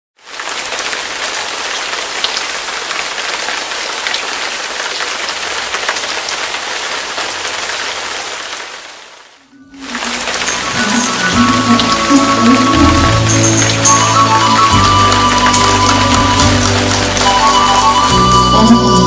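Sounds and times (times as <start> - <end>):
heavy rain falling: 0.2 - 19.0.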